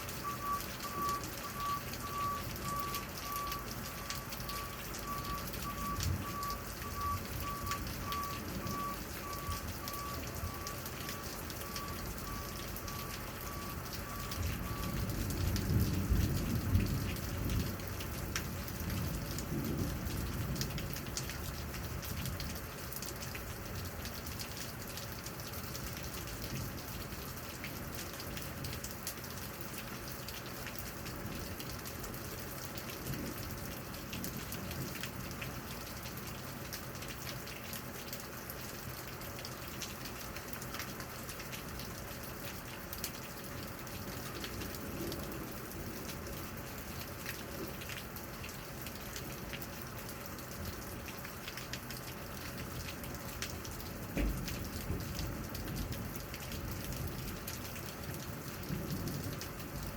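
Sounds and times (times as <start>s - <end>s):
rain falling: 0.0s - 59.9s
raindrops ticking: 0.0s - 59.9s
thunder rumbling: 14.0s - 21.0s.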